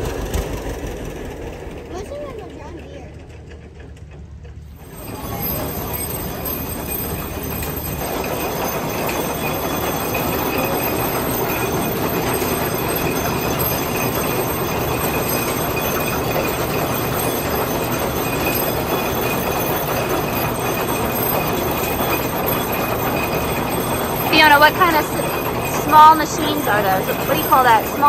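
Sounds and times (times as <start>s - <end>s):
high whine from pulleys and belts: 0.0s - 28.0s
machinery clattering: 0.0s - 28.0s.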